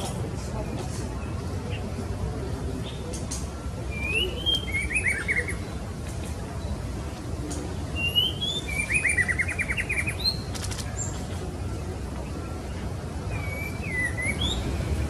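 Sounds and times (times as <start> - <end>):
low background noise: 0.0 - 15.0
bird whistled song: 2.9 - 5.8, 8.0 - 11.1, 13.3 - 15.0.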